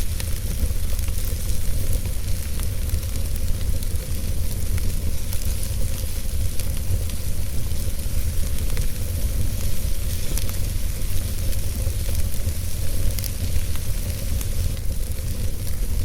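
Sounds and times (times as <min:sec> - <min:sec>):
wood fire burning: 0:00.0 - 0:16.0.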